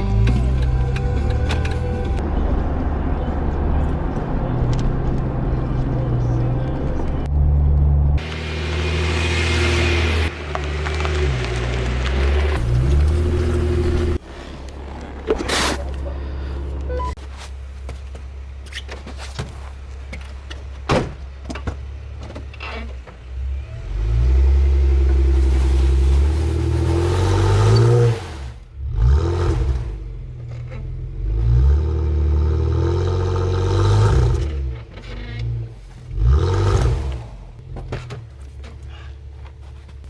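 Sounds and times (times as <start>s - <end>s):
engine revving: 2.8s - 14.2s, 23.4s - 37.6s.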